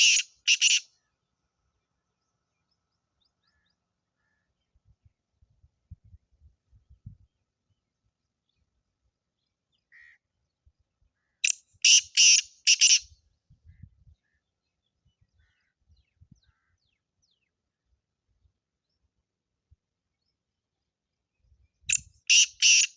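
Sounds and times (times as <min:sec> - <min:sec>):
bird harsh call: 0:00.0 - 0:01.1, 0:11.2 - 0:13.1, 0:22.3 - 0:22.9.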